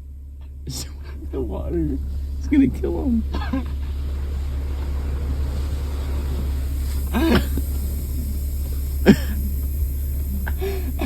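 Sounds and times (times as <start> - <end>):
car wash rumbling: 0.0 - 11.0.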